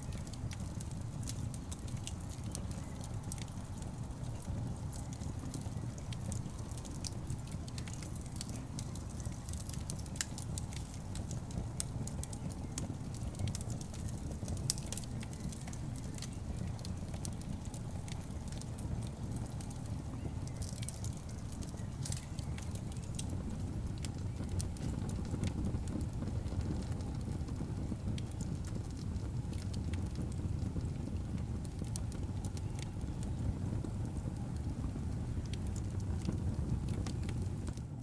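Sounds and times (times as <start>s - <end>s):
fire rumbling: 0.0s - 38.0s
wood crackling and popping: 0.0s - 38.0s.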